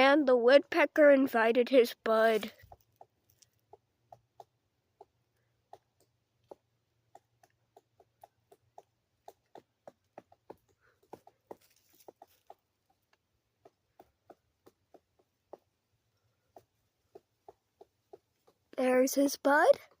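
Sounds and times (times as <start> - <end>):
woodpecker pecking at wood: 2.0 - 20.0.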